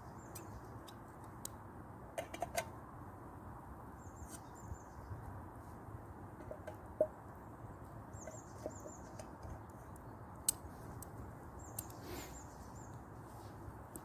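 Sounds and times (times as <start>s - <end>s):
campfire crackling: 8.2s - 14.0s.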